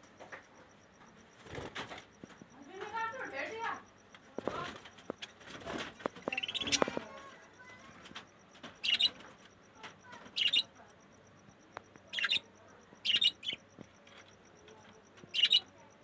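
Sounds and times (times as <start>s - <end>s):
budgerigars chirping: 6.1s - 7.1s, 8.8s - 9.2s, 10.3s - 10.7s, 12.1s - 12.4s, 13.0s - 13.6s, 15.3s - 15.6s.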